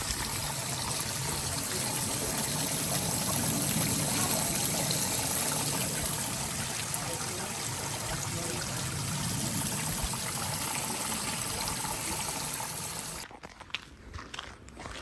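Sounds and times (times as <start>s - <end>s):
stream running over stones: 0.0s - 13.2s
footsteps on a trail: 13.2s - 15.0s.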